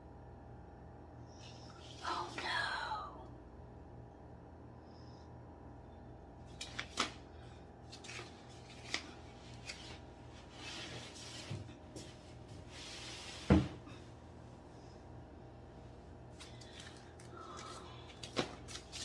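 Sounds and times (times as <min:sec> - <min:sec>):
soft rubbing: 0:08.0 - 0:13.6.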